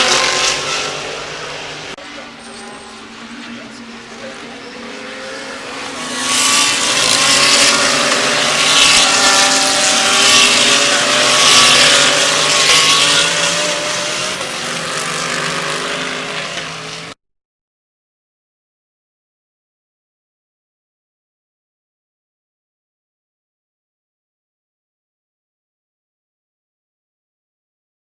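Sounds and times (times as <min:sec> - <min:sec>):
race car engines passing by: 0:00.0 - 0:17.2.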